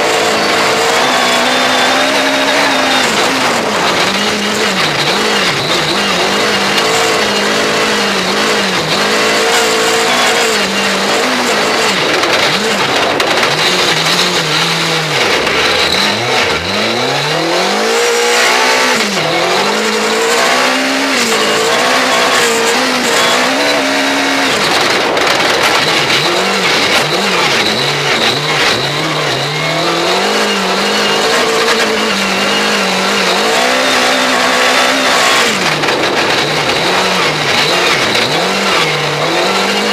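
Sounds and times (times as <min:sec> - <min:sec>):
rally car engine revving: 0:00.0 - 0:39.9
tyre and wind noise: 0:00.0 - 0:39.9.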